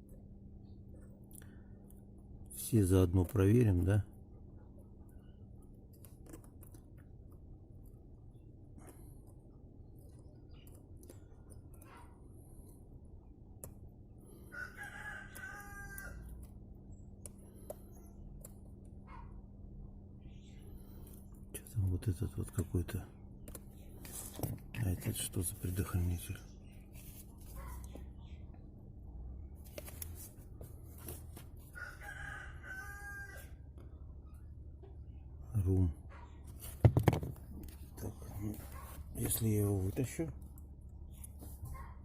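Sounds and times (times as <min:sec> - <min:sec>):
steady low hum: 0:00.0 - 0:31.8
rooster crowing: 0:14.5 - 0:16.3, 0:31.7 - 0:33.7.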